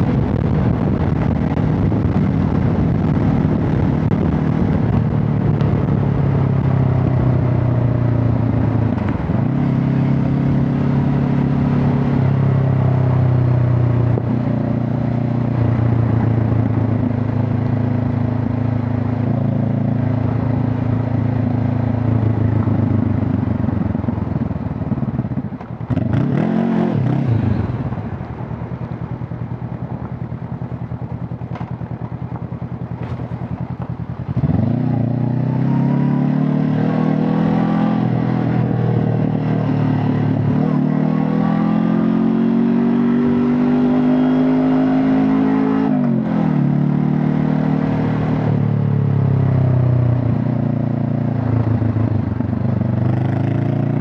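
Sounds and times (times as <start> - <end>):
motorcycle engine and exhaust: 0.0 - 54.0.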